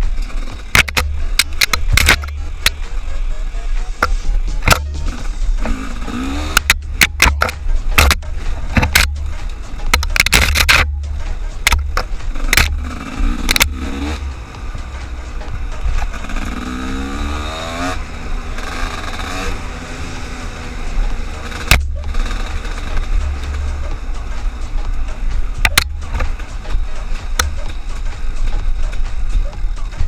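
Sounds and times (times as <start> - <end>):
heavy low rumble: 0.0 - 30.0
engine rising in pitch: 12.7 - 24.9.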